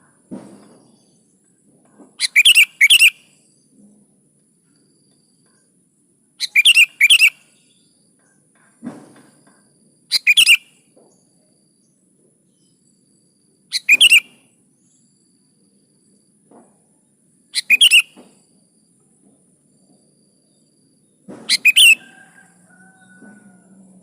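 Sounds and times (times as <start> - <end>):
bird warbling: 2.2 - 3.2, 6.4 - 7.4, 13.7 - 14.3, 17.6 - 18.1, 21.5 - 22.2.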